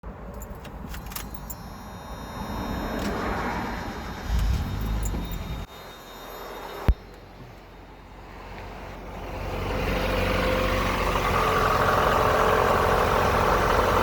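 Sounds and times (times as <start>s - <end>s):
car engine starting and running: 0.0s - 14.0s
keys jingling and clicking: 0.2s - 1.7s, 4.3s - 5.6s.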